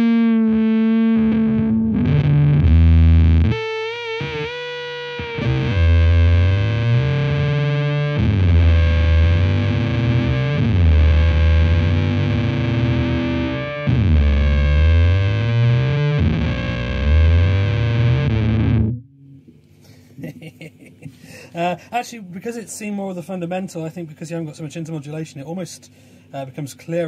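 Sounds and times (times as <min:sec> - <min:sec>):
heavy fuzz electric guitar chords: 0:00.0 - 0:19.3.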